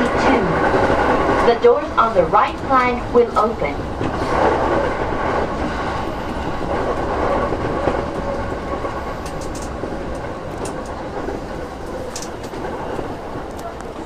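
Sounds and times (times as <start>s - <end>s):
electric train wheels rumbling on track: 0.0s - 14.0s
light clicks of train wheels: 5.6s - 14.0s.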